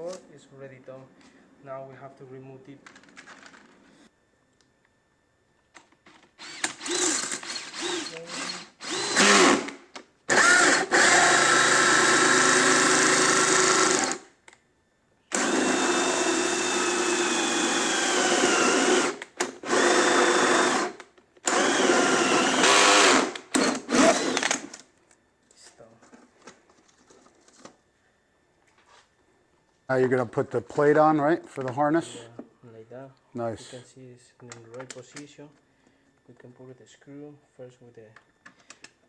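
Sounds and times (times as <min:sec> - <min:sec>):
power drill running: 0:06.4 - 0:14.3, 0:15.3 - 0:24.8.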